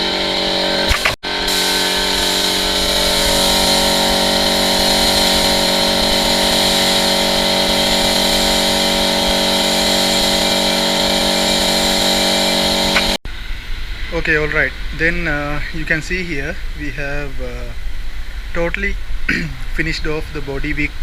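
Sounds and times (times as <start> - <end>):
workshop machine humming: 0.0 - 13.2.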